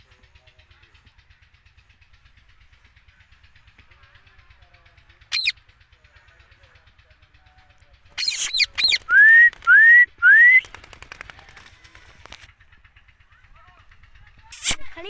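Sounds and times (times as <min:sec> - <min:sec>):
parakeet screeching and squawking: 0:05.3 - 0:05.6, 0:08.2 - 0:09.0
parakeet rising whistles: 0:08.2 - 0:10.6.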